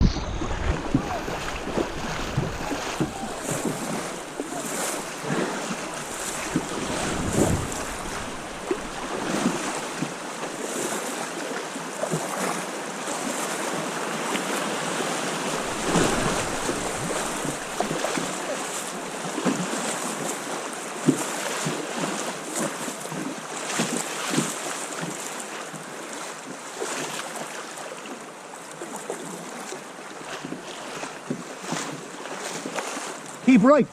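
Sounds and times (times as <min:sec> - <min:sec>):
wind on microphone: 0:00.0 - 0:10.2, 0:15.4 - 0:18.4
river water rushing and splashing: 0:00.0 - 0:33.9.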